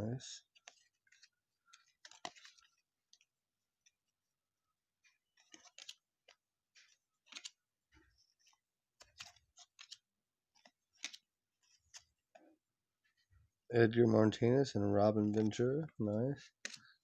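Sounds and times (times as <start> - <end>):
baseball cards being flipped: 0.4 - 4.0, 5.1 - 7.7, 8.3 - 12.5, 16.5 - 17.0.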